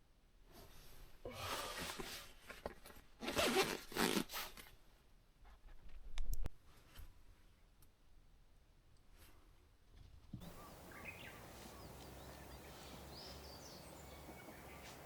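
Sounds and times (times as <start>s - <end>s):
zipper rasping: 3.2s - 4.6s.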